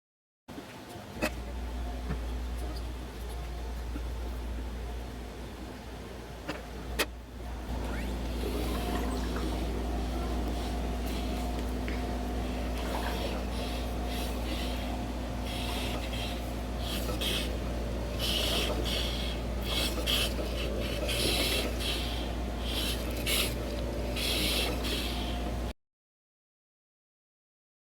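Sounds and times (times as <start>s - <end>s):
exercise machine humming: 0.6s - 25.7s.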